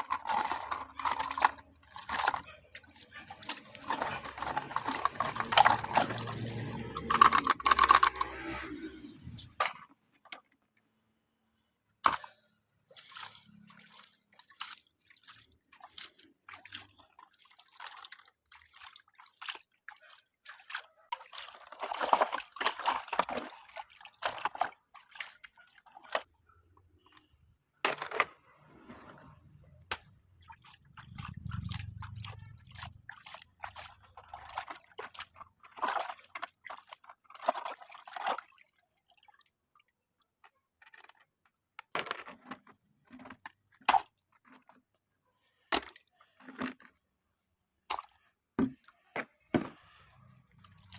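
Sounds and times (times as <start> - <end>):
toy vehicle clicks: 6.9 - 8.6
splashes in muddy water: 12.1 - 26.2, 30.4 - 39.5.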